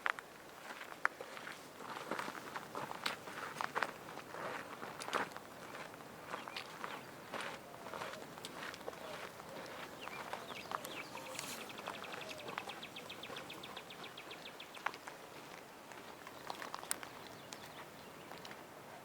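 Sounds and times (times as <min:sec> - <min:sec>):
bird trilling: 0:10.0 - 0:14.5
light clicks and crunches: 0:14.8 - 0:18.6.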